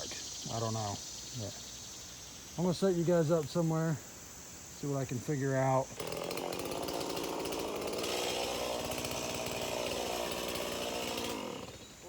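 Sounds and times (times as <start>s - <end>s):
chainsaw engine running: 5.8s - 12.0s.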